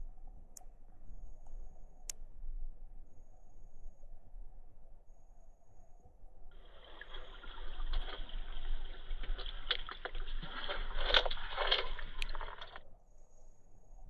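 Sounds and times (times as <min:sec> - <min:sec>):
river water splashing: 0:06.6 - 0:12.8.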